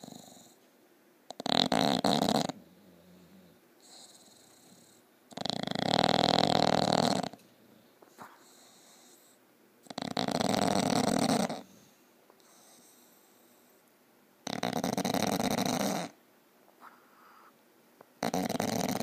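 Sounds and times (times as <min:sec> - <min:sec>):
dog snoring loudly: 0:00.0 - 0:00.6, 0:01.3 - 0:07.4, 0:08.2 - 0:13.0, 0:14.4 - 0:16.2, 0:18.2 - 0:19.0.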